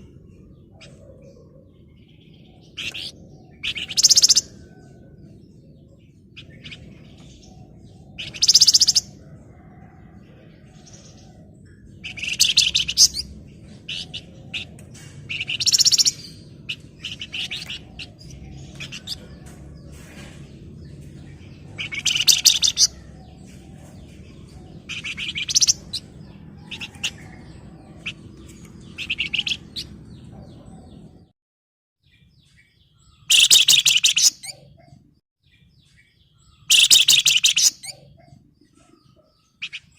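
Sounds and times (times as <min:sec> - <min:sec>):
soft bird chirps: 0:00.0 - 0:10.0, 0:10.6 - 0:31.3, 0:32.0 - 0:39.9
songbird chattering song: 0:00.0 - 0:31.3, 0:32.0 - 0:39.9.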